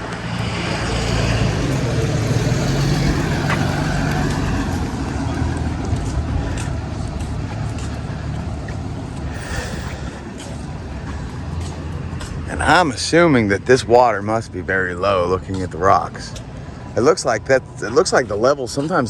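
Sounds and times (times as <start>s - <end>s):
vehicle driving past: 0.0s - 10.4s.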